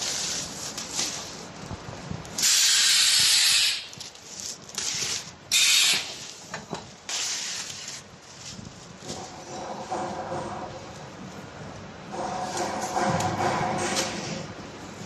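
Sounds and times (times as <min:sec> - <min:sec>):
pneumatic hissing blasts: 0:02.4 - 0:03.9, 0:05.5 - 0:06.3
low mechanical clatter: 0:08.9 - 0:15.0.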